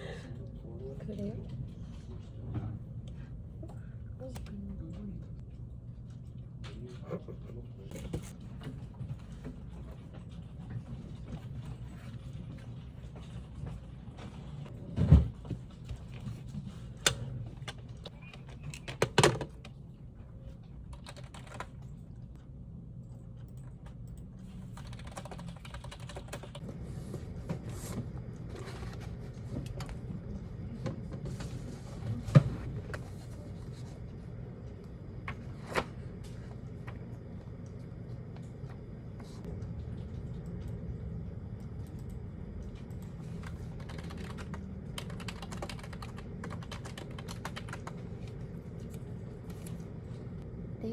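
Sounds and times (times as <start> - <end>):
steady low hum: 0.0 - 50.9
typing on computer keyboard: 20.9 - 21.9, 23.4 - 26.6, 42.8 - 48.1.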